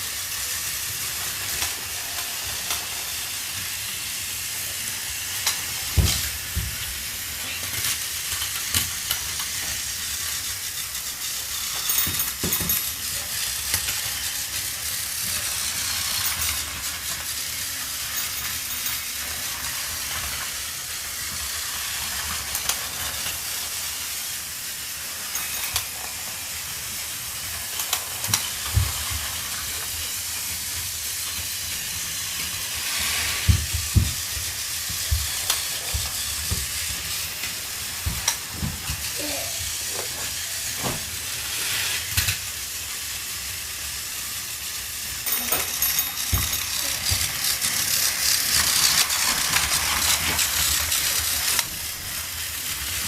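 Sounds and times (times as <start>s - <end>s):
steam hissing: 0.0s - 53.0s.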